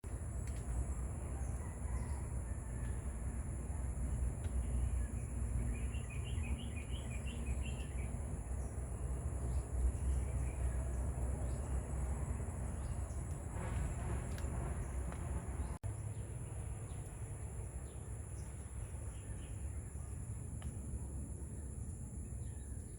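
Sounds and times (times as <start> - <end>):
bird chirping: 4.4 - 13.4.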